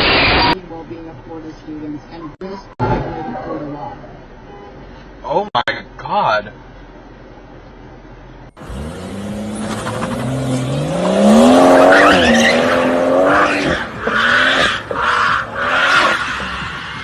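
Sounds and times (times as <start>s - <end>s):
car engine revving: 8.5s - 17.0s
tyres squealing: 11.2s - 17.0s.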